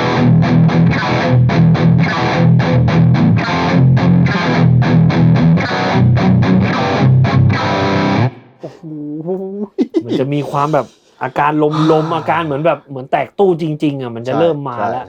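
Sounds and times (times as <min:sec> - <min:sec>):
distorted electric guitar chugging riffs: 0:00.0 - 0:08.3.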